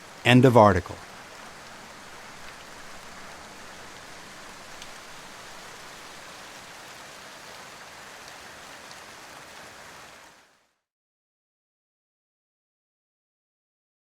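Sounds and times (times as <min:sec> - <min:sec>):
rain hissing: 0:00.0 - 0:10.7
faint raindrop ticks: 0:01.0 - 0:06.4, 0:07.5 - 0:10.5.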